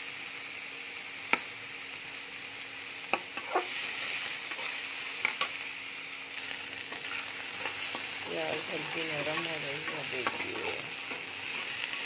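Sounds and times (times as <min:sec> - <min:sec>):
onions sizzling in oil: 0:00.0 - 0:12.0
metal spatula scraping a pan: 0:03.3 - 0:05.6, 0:06.4 - 0:12.0.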